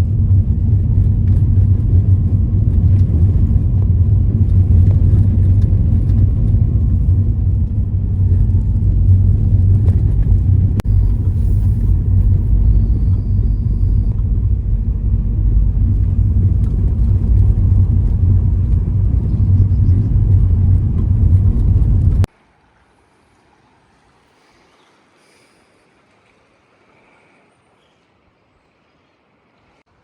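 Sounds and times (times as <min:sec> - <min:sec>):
car engine and road rumble: 0:00.0 - 0:22.4.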